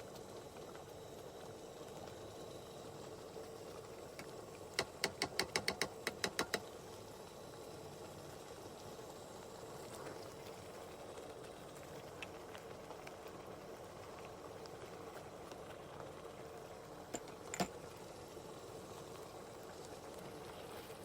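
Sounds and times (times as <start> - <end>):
spoon knocking on cooking pot: 4.8 - 6.6.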